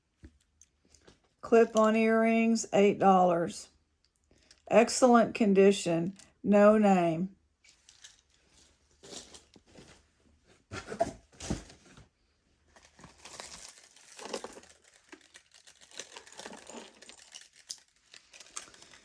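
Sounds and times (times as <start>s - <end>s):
packaging crinkling: 12.8s - 19.0s.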